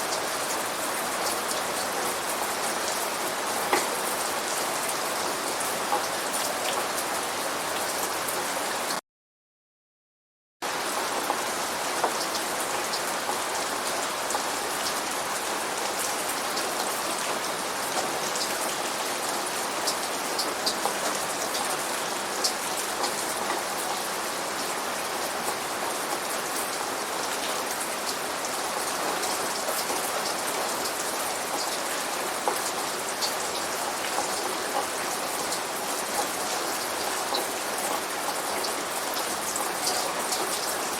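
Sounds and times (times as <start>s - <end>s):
steady rain hiss: 10.7s - 40.9s.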